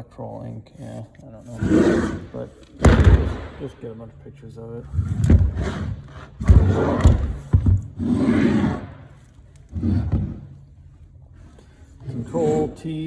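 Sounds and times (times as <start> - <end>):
hardware rubbing and scraping: 0.0 - 3.8, 4.4 - 13.0
sharp knocks: 2.7 - 3.8.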